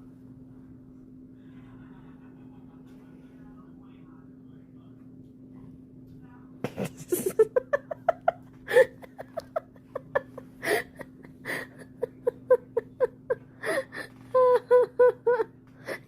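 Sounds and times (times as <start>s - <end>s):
person laughing hard: 6.7s - 16.0s.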